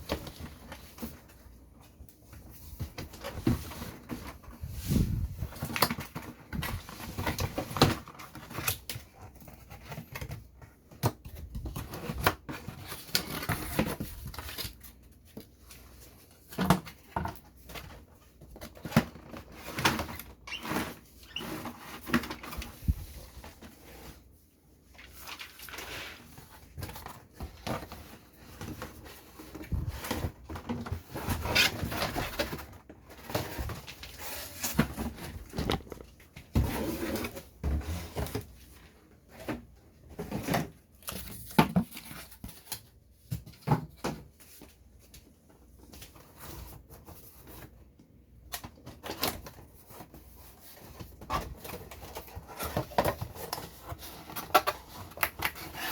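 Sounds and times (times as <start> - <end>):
packaging rustling: 2.3 - 38.8.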